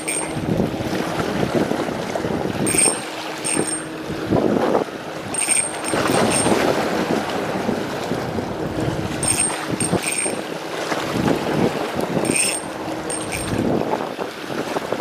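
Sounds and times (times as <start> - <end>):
faint high ringing: 0.0 - 0.6, 2.6 - 4.0, 5.3 - 6.6, 9.2 - 10.5, 12.2 - 13.7
sea waves rushing: 0.0 - 15.0
wind buffeting microphone: 0.0 - 15.0.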